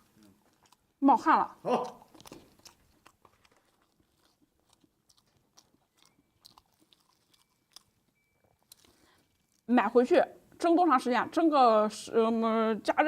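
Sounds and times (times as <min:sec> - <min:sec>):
faint chewing mouth clicks: 0:00.0 - 0:00.9, 0:01.7 - 0:09.7.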